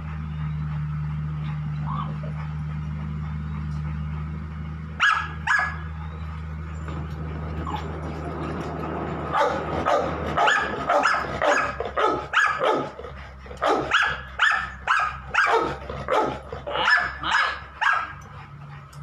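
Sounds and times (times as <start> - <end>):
dog barking: 1.9 - 2.2, 5.0 - 5.9, 9.3 - 18.2.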